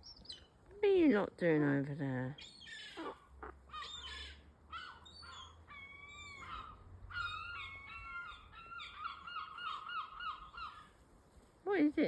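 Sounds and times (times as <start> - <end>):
birds squawking: 2.4 - 11.0.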